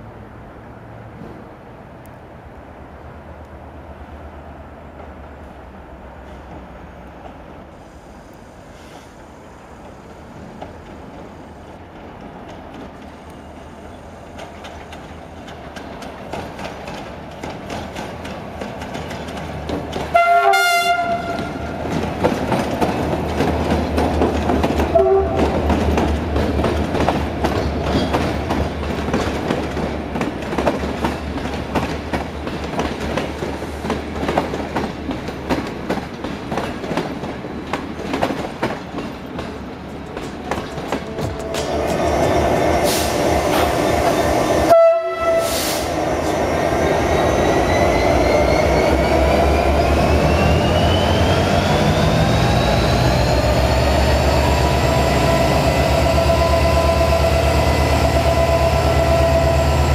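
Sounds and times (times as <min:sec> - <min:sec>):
train passing: 0:00.0 - 0:59.9
wheels clacking over rail joints: 0:14.2 - 0:44.5
train horn blast: 0:20.1 - 0:21.8, 0:24.9 - 0:25.6, 0:40.1 - 0:42.2, 0:44.6 - 0:45.8
locomotive engine drone: 0:39.4 - 0:59.9.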